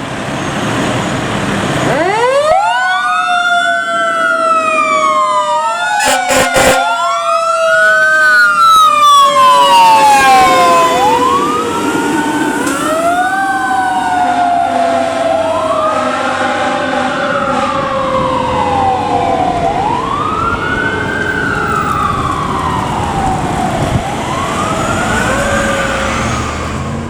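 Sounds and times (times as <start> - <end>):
fire truck sirens wailing: 0.0 - 27.0
short sharp siren bursts: 5.7 - 22.7.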